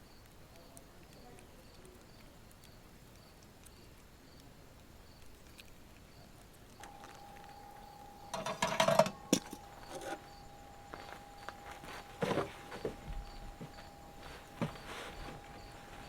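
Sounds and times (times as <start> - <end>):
faint steady tone: 6.2 - 16.0
clattering of cooking gear: 8.2 - 16.0.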